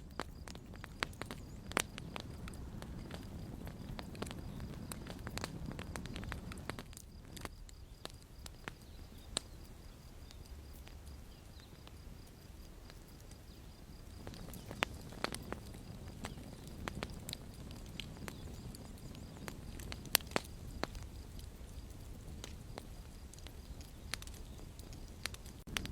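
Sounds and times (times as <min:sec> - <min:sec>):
campfire crackling and popping: 0:00.0 - 0:25.9
low rumble of burning: 0:00.0 - 0:25.9.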